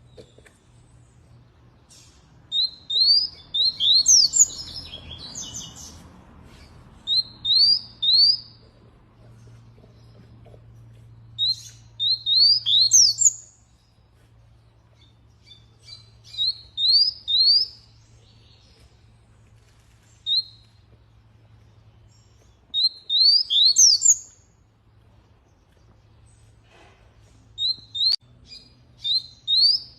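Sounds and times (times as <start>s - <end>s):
canary singing: 1.8s - 6.0s, 7.0s - 14.0s, 14.6s - 19.1s, 19.9s - 24.6s, 27.6s - 29.9s.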